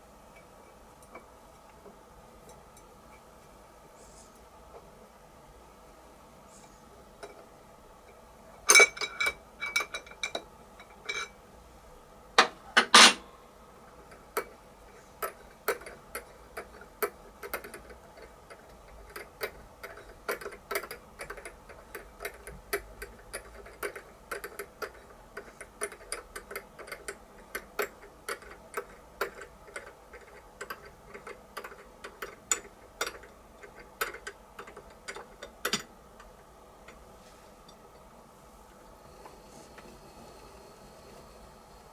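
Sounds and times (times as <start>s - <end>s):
faint machine hum: 0.0s - 41.9s.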